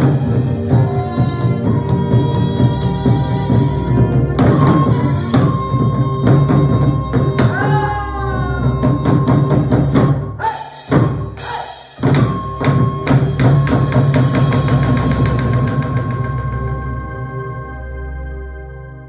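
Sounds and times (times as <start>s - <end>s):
sliding melodic line: 0.0s - 9.8s
barrel drums and percussion: 0.0s - 17.6s.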